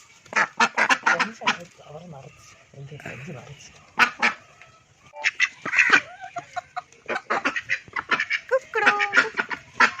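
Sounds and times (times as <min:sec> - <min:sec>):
parrots squawking and chattering: 0:00.3 - 0:10.0.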